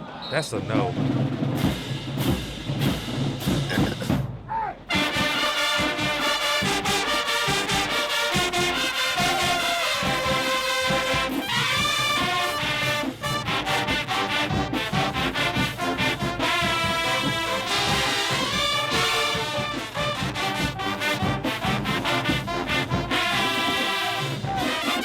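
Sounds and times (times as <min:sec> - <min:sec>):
drum beats: 0:00.4 - 0:25.0
brass section playing tune: 0:04.9 - 0:25.0.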